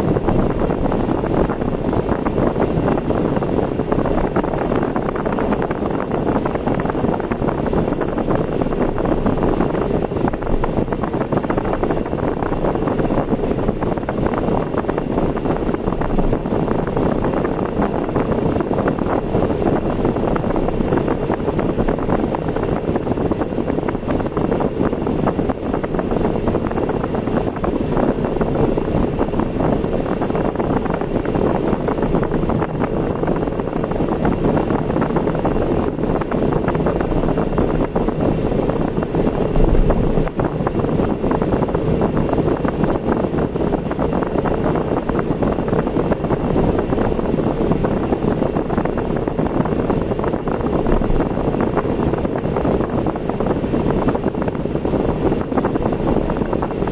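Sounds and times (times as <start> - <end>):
car engine and tyre noise: 0.0 - 56.9.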